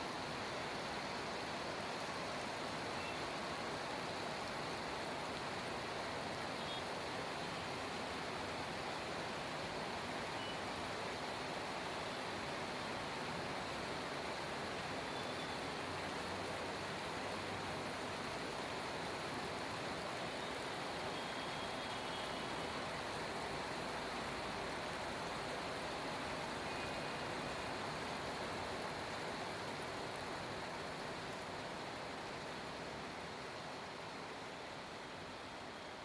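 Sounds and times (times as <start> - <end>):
heavy rain hissing: 0.0 - 36.0.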